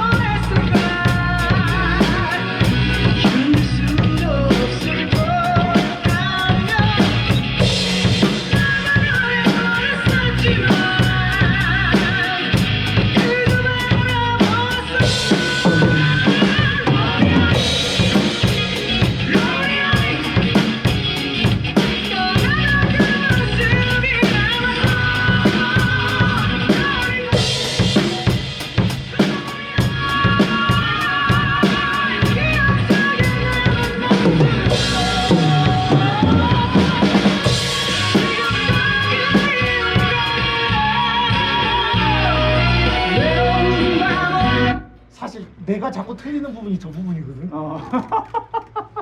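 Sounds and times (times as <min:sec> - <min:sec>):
drum kit playing a beat: 0:00.0 - 0:44.7
recorded rock song: 0:00.0 - 0:46.0.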